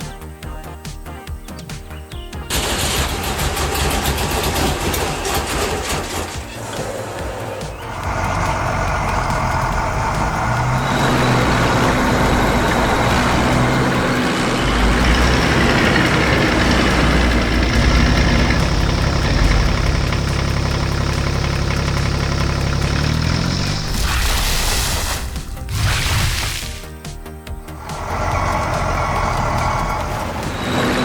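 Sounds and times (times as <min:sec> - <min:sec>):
heavy vehicle engine running: 0:02.5 - 0:26.0, 0:26.6 - 0:31.0.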